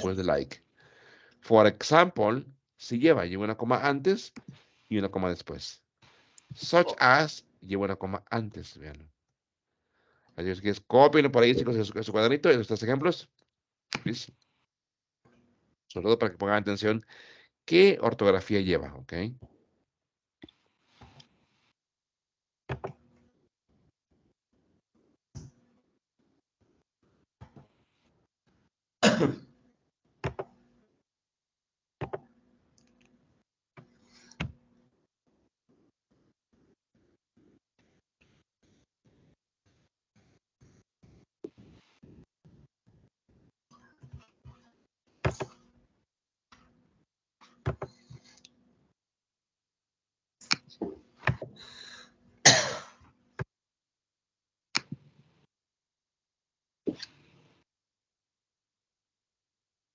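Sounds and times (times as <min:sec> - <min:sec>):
person coughing: 0:29.0 - 0:29.4, 0:52.4 - 0:53.0.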